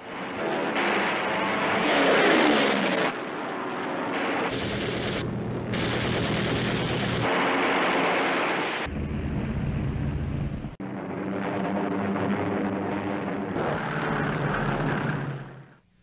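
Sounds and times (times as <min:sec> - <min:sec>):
aircraft noise: 0:00.0 - 0:15.8
falling whine: 0:00.0 - 0:15.9
machine-gun fire: 0:04.2 - 0:09.0.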